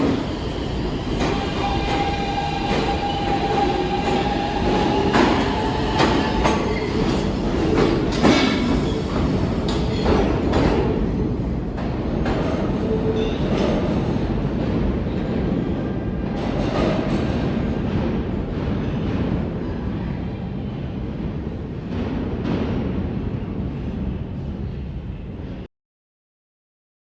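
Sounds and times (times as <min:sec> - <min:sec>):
rail clacks: 0:00.0 - 0:20.1
subway train rumble: 0:00.0 - 0:25.7.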